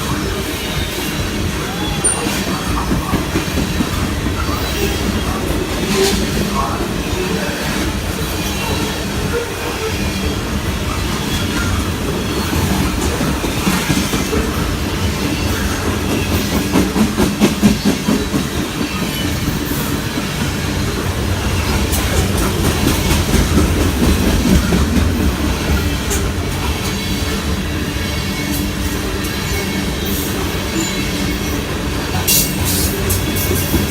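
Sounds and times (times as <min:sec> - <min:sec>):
train wheels rolling over rails: 0:00.0 - 0:33.9.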